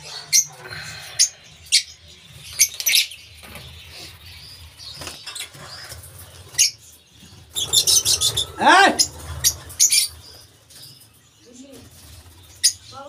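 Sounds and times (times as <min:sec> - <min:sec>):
lovebirds chirping: 0:00.0 - 0:13.0.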